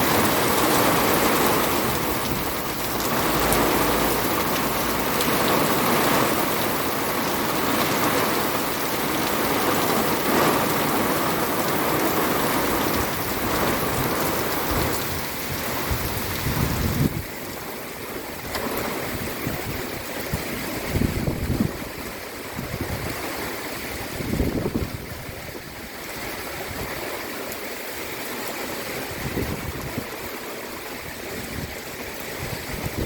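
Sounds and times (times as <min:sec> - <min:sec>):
low rumbling gusts: 0:00.0 - 0:27.3, 0:29.0 - 0:33.0
heavy rain pouring: 0:00.0 - 0:33.0.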